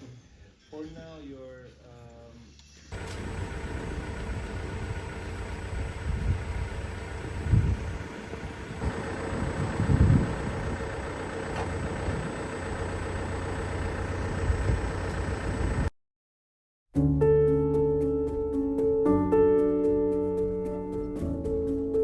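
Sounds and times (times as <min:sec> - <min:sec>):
vehicle engine rumble: 0:02.9 - 0:15.9
piano music: 0:17.0 - 0:22.0.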